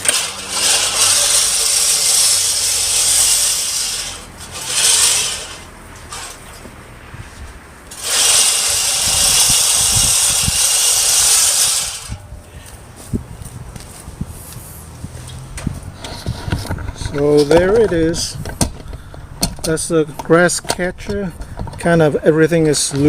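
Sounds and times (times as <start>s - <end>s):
reel mower whirring: 0.0s - 6.4s, 7.9s - 12.2s.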